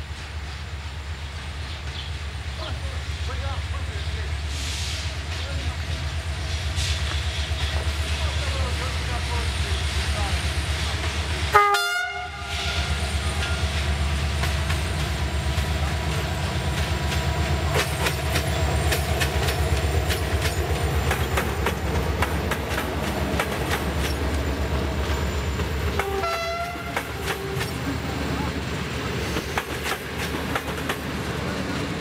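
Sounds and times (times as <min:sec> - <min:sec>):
diesel locomotive engine droning: 0:00.0 - 0:32.0
train horn: 0:11.5 - 0:13.6, 0:26.0 - 0:27.8
wheels clacking over rail joints: 0:13.1 - 0:32.0.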